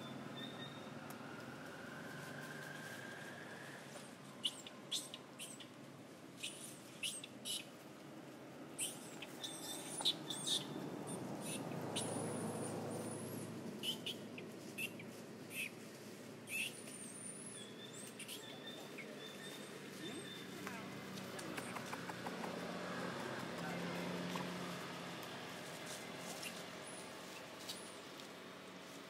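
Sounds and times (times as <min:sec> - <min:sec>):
small birds chirping: 0:04.4 - 0:05.8, 0:06.4 - 0:07.8, 0:08.7 - 0:15.8, 0:16.5 - 0:22.7.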